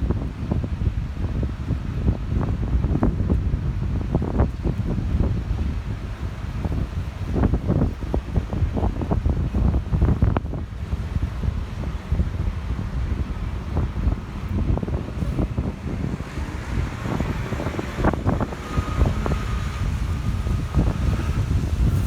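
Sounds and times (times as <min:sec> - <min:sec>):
gusty wind buffeting microphone: 0:00.0 - 0:22.0.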